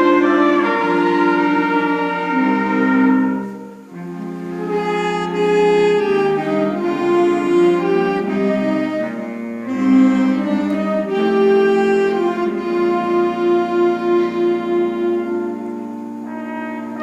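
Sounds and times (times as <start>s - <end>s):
woodwind band playing held notes: 0.0s - 17.0s.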